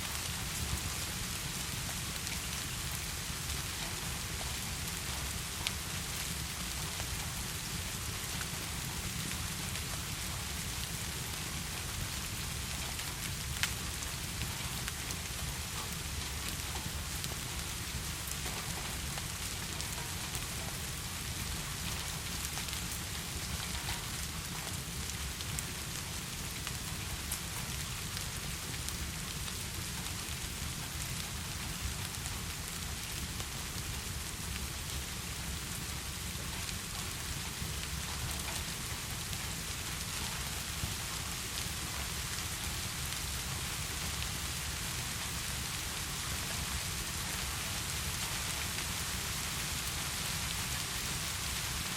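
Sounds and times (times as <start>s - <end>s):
raindrop ticks: 3.6s - 7.5s, 12.3s - 44.6s.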